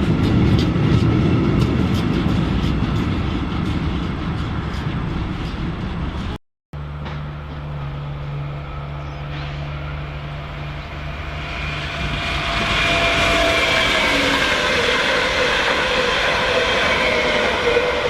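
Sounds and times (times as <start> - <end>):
train passing: 0.0 - 18.0
high whine: 4.1 - 18.0.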